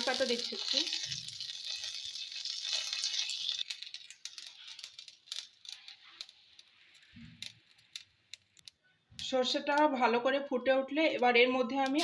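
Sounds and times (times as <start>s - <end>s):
seeds sizzling in hot oil: 0.0s - 6.9s.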